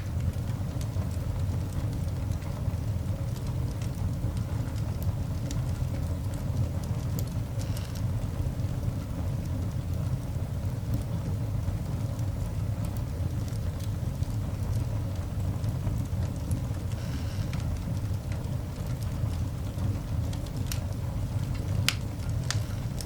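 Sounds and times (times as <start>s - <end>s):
coal fire rumbling: 0.0s - 23.0s
fire crackles: 0.0s - 23.0s
fire hissing: 7.1s - 8.8s, 12.4s - 23.0s.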